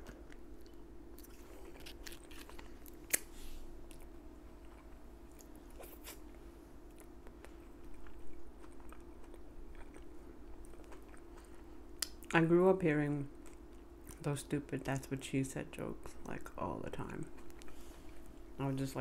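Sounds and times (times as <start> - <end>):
crunchy chewing: 0.0 - 12.3, 17.2 - 18.5
faint steady hum: 0.0 - 19.0.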